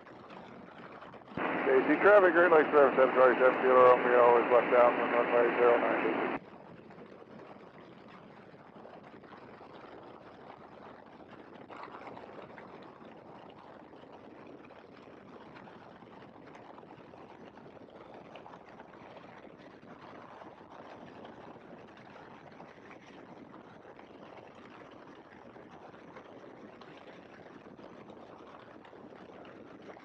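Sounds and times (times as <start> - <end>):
biplane engine: 1.4 - 6.4.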